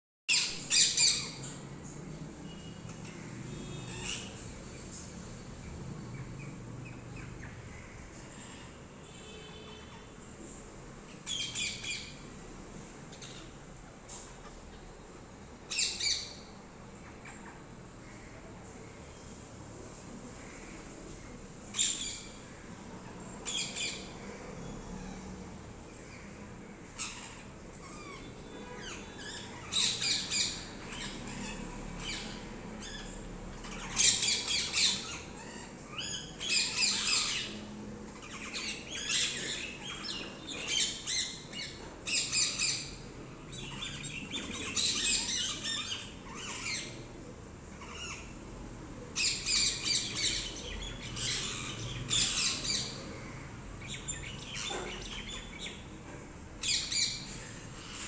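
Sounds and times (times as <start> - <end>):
parrots squawking: 0.3 - 1.8, 2.9 - 4.8, 11.2 - 12.3, 15.7 - 17.8, 21.7 - 25.4, 26.0 - 56.0, 56.6 - 58.0.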